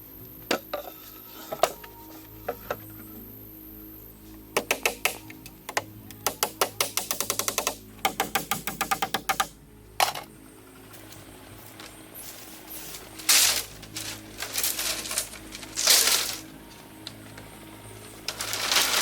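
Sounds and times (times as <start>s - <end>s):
faint low drone: 0.0s - 6.7s, 9.5s - 19.0s
rapid sharp knocks: 6.2s - 9.5s.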